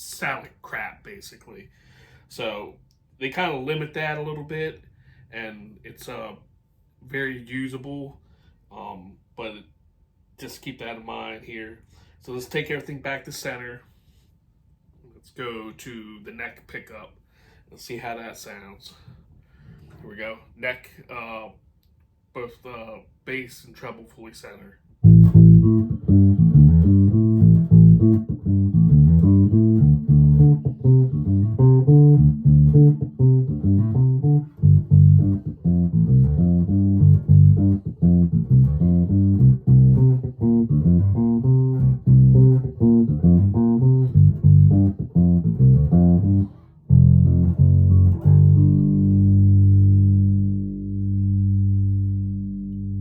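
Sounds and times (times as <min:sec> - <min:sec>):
electric bass plucked notes: 0:25.0 - 0:53.0.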